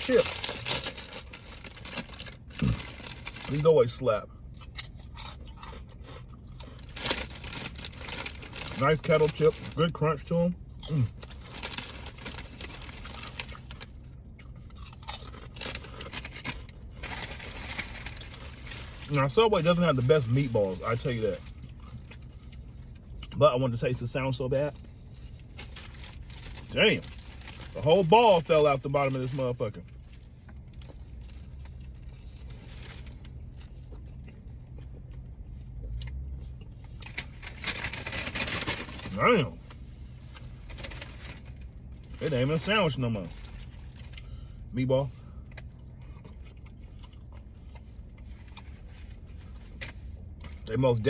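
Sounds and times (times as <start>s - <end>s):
crunching potato chips: 0.0s - 39.6s, 40.3s - 44.5s, 45.4s - 51.0s
steady low hum: 0.0s - 51.0s
person chewing: 4.5s - 7.2s, 13.0s - 16.5s, 45.5s - 48.8s.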